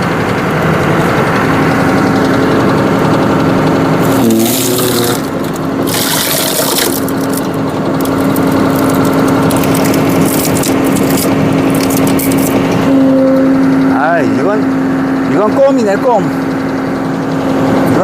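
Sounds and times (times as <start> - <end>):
tractor engine running: 0.0 - 18.0
hydraulic log splitter hissing: 3.7 - 12.9.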